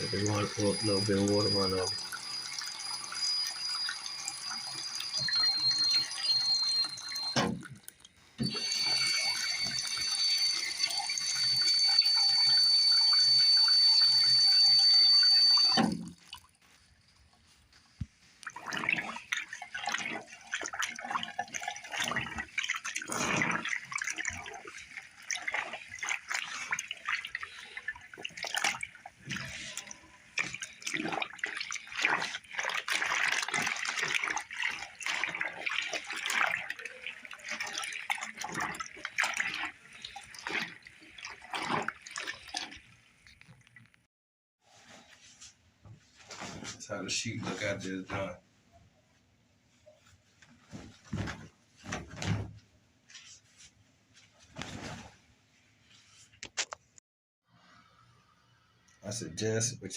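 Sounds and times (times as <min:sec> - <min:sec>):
water running from tap: 0:00.0 - 0:07.6, 0:08.4 - 0:16.4, 0:18.5 - 0:43.8
splashing and sloshing water: 0:15.7 - 0:16.8, 0:18.2 - 0:44.1.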